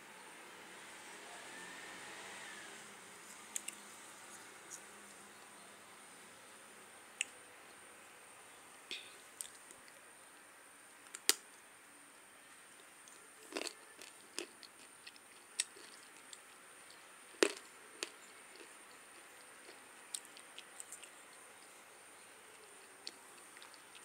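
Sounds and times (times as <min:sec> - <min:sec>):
clay being bitten and chewed: 0:13.5 - 0:21.7.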